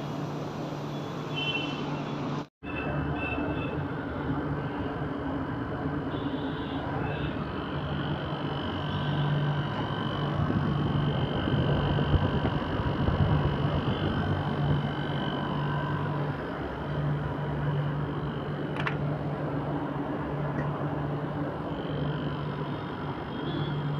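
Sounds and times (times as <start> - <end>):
air conditioner humming: 3.5 - 23.9.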